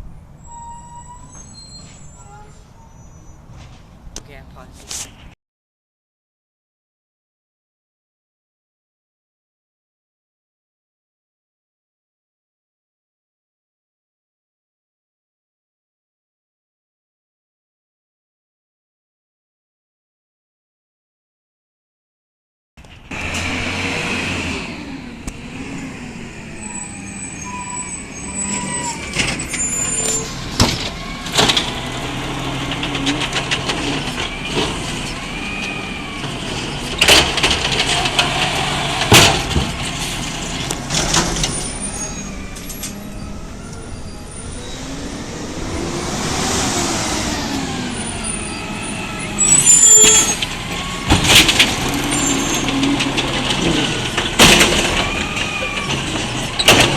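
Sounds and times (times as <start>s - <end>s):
garbage truck engine running: 22.9s - 56.9s
sharp knocks and bangs: 37.0s - 40.1s.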